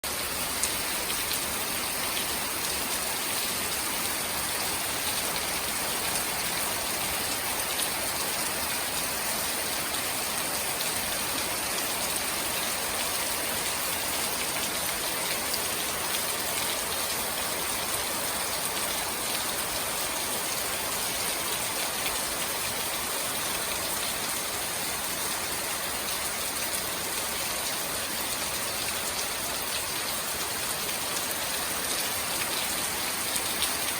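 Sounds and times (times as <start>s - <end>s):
heavy rain pattering: 0.0s - 33.9s.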